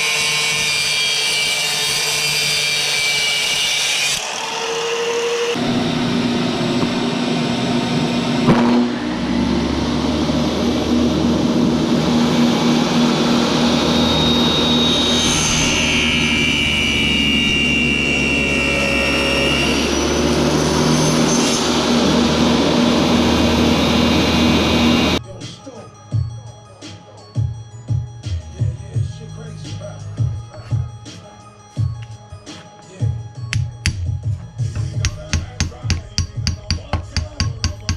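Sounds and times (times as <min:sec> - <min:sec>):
electric power tool running: 0:00.0 - 0:25.2
high tool whine: 0:00.0 - 0:25.2.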